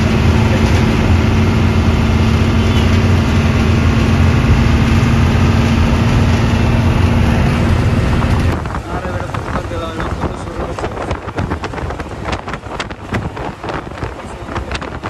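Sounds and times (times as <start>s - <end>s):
bus engine rumbling: 0.0s - 15.0s.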